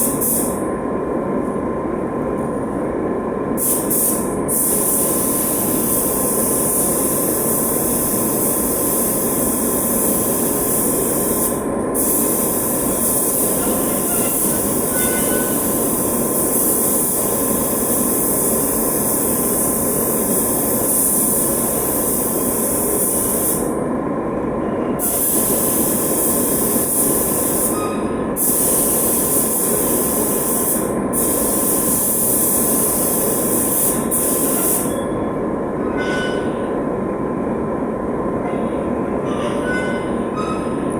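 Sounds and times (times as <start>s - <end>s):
spray gun hissing: 3.6s - 23.6s, 25.0s - 27.8s, 28.4s - 34.9s.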